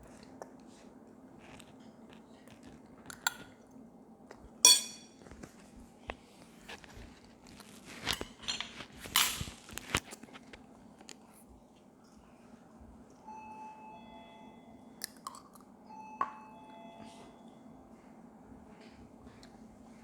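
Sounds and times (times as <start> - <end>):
chewing: 0.0 - 3.4
ringing clink: 4.7 - 5.1
utensils clicking and scraping dishes: 4.7 - 5.1, 7.8 - 10.1.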